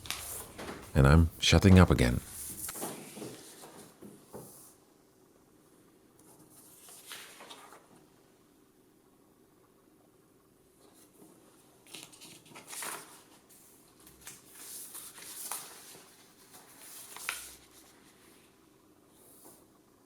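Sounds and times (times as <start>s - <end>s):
paper rustling and crinkling: 0.0s - 4.8s, 6.2s - 8.0s, 10.9s - 18.5s.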